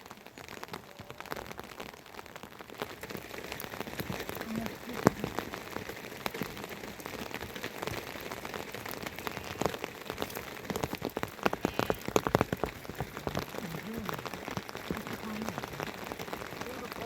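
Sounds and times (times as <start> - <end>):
rain falling: 0.0 - 17.0
raindrops tapping on a surface: 0.0 - 17.0.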